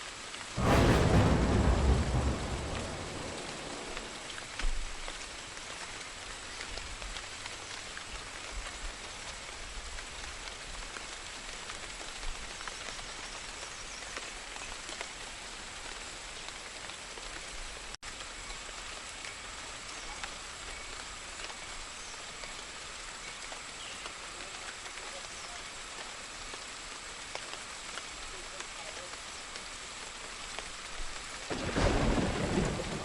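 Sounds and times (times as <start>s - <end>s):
steady rain falling: 0.0s - 33.0s
faint low rumble: 0.6s - 4.6s.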